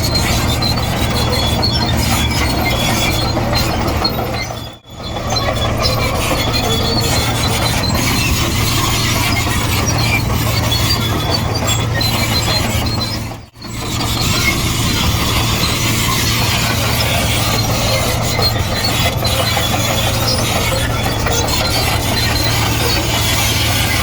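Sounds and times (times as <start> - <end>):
bulldozer diesel engine droning: 0.0 - 24.0
steel tracks squeaking: 0.0 - 24.0.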